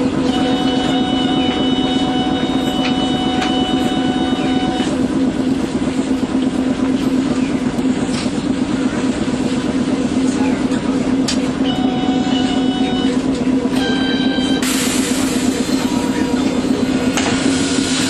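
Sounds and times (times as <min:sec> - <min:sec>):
tram low hum: 0:00.0 - 0:18.0
tram motor whine: 0:00.0 - 0:18.0.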